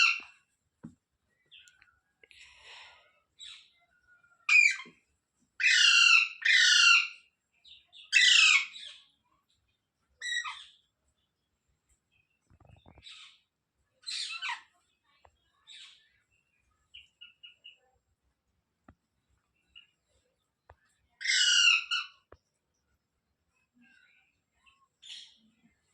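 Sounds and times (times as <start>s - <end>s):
parrot squawking: 5.6s - 7.2s, 8.1s - 8.8s, 21.2s - 22.2s.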